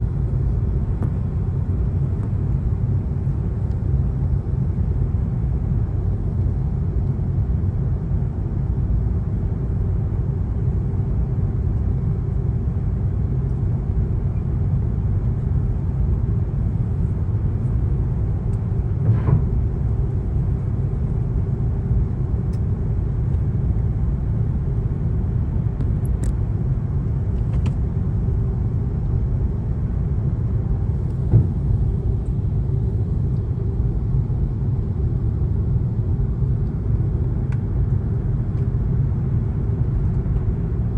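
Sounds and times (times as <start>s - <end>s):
airplane engines rumbling: 0.0s - 40.9s
short knock: 31.2s - 31.6s.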